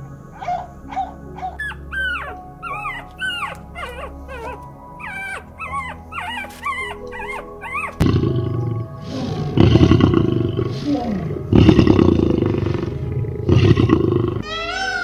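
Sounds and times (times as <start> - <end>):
faint background music: 0.0 - 15.0
lion growling: 0.0 - 15.0
dogs whimpering and squeaking: 0.3 - 9.6, 14.4 - 15.0.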